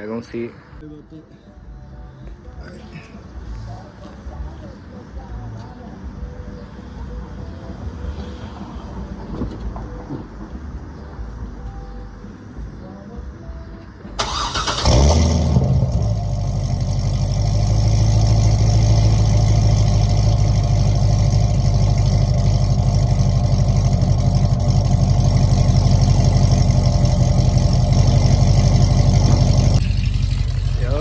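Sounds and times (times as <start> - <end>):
car engine idling: 14.2 - 31.0.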